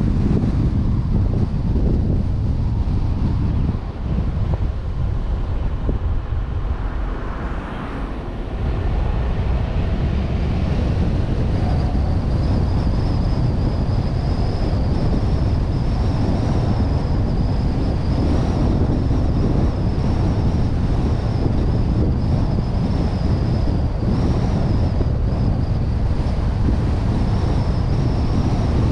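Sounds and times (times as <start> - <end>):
low road rumble: 0.0 - 28.9
wind rushing over camera: 0.0 - 28.9
faint high whine: 6.7 - 28.9.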